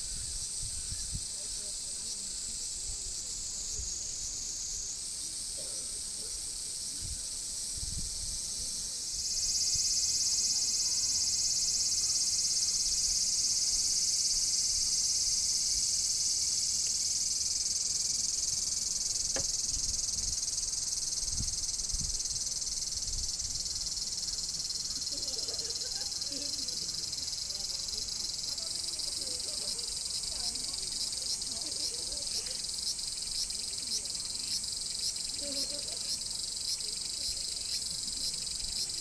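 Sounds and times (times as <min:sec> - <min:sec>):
insects chirring: 0:00.0 - 0:39.0
loud dense insect buzz: 0:09.1 - 0:29.1.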